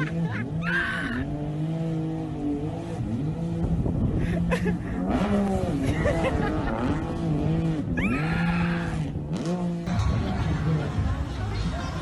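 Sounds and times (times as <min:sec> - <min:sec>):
engine revving: 0:00.0 - 0:11.3.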